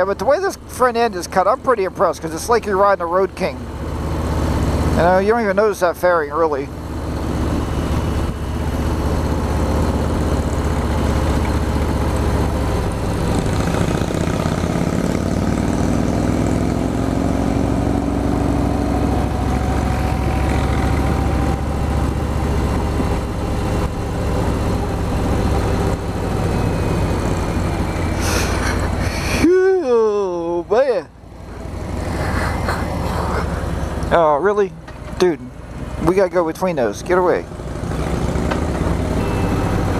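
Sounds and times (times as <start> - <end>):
motorcycle engine running: 0.0 - 29.5.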